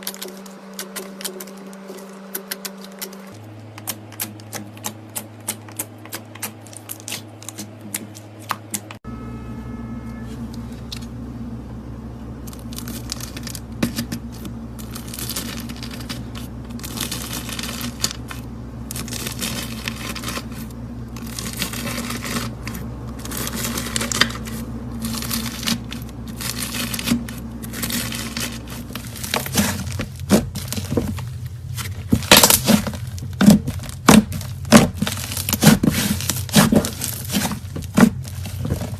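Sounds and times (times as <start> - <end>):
slime squelching: 0.0 - 9.0, 12.4 - 38.9
steady low hum: 0.0 - 38.9.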